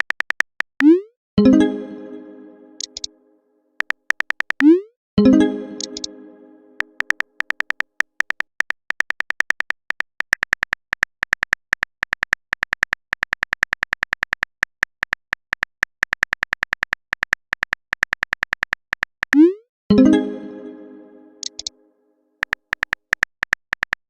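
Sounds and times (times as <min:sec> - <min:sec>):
electronic typing blips: 0:00.8 - 0:03.1, 0:03.8 - 0:08.4, 0:19.3 - 0:21.7.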